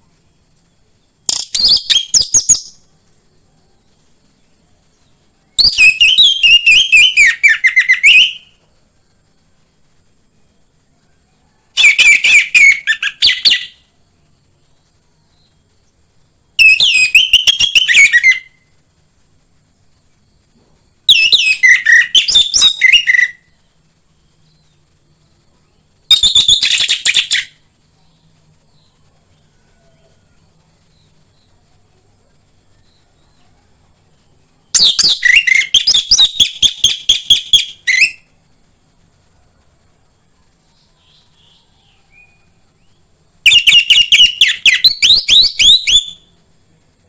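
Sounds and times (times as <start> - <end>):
faint high hiss: 0.0 - 47.0.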